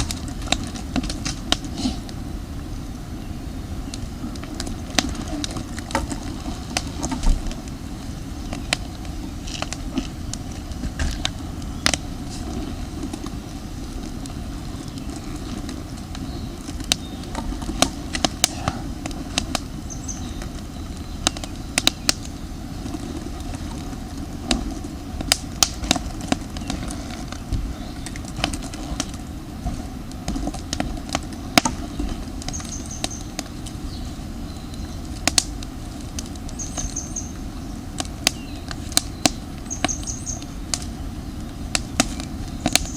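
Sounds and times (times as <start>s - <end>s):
campfire crackling and popping: 0.0s - 42.9s
high bird chirps: 32.5s - 35.0s, 36.5s - 37.4s, 38.3s - 40.6s.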